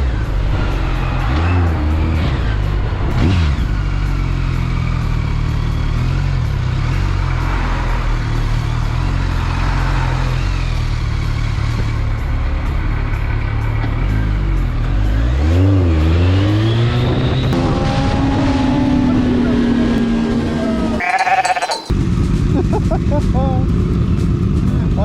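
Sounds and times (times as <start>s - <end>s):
motorcycle engine running: 0.0s - 25.0s
wind noise: 16.8s - 21.0s.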